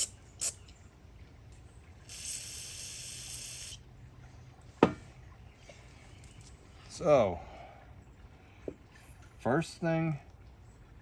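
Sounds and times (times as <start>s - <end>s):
spray hissing: 2.1s - 3.8s.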